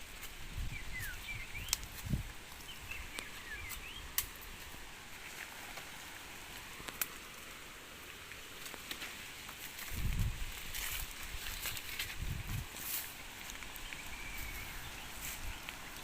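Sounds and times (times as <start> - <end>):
faint steady hiss: 0.0 - 16.0
small bird chirping: 0.6 - 4.2, 13.6 - 16.0.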